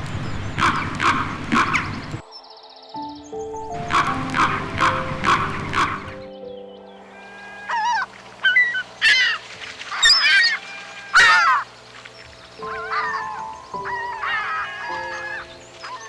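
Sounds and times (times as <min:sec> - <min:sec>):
background music: 0:02.2 - 0:07.9, 0:12.6 - 0:16.0
animal calls: 0:07.0 - 0:16.0.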